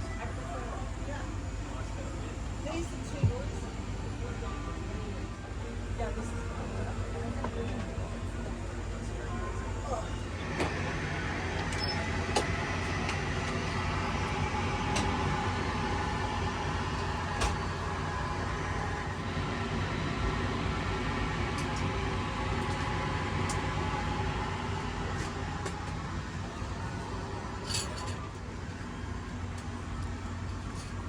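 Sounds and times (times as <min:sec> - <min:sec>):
cabin air hum: 0:08.0 - 0:30.8.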